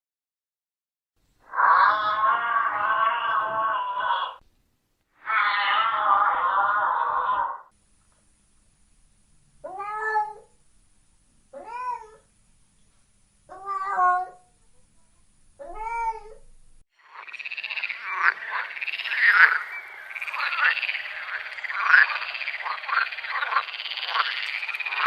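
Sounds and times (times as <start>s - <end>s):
cat meowing: 1.5s - 4.4s, 5.2s - 7.7s, 9.7s - 10.5s, 11.6s - 12.2s, 13.5s - 14.5s, 15.6s - 16.4s
frogs croaking: 16.9s - 25.0s.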